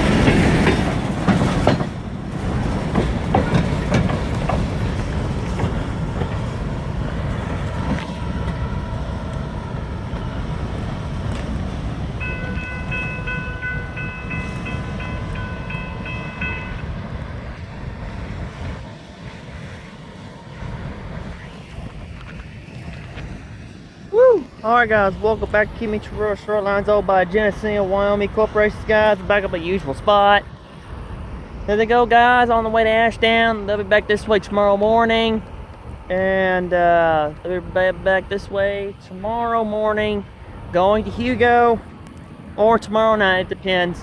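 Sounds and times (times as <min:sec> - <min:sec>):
freight train wheels clacking: 0:00.0 - 0:19.8
steady high ringing tone: 0:08.6 - 0:18.4.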